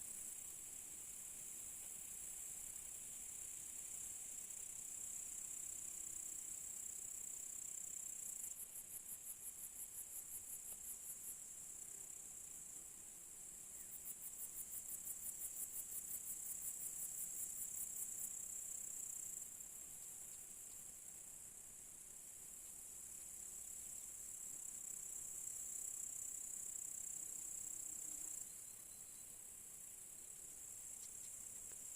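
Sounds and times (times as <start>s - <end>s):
rapid rhythmic cricket chirping: 0.0s - 31.9s
cricket trill: 22.5s - 31.9s.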